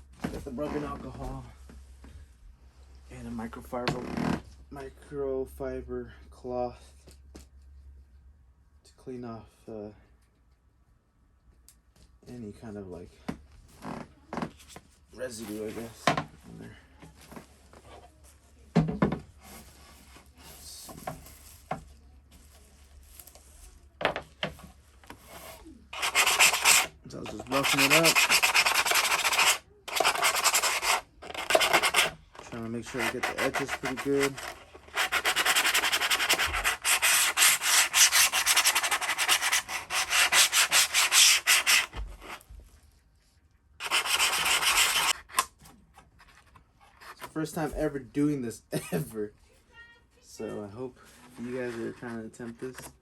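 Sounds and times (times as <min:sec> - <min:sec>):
sandpaper scraping: 0:25.2 - 0:42.4, 0:43.8 - 0:45.4.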